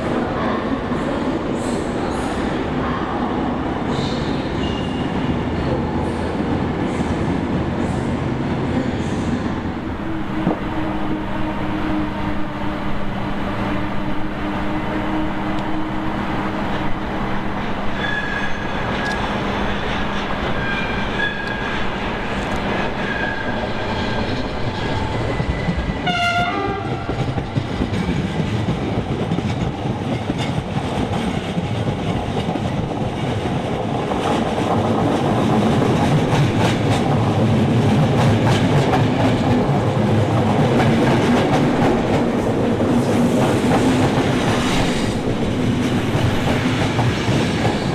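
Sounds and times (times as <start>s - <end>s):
train wheels rumbling on rails: 0.0s - 47.9s
short train horn: 26.0s - 27.1s.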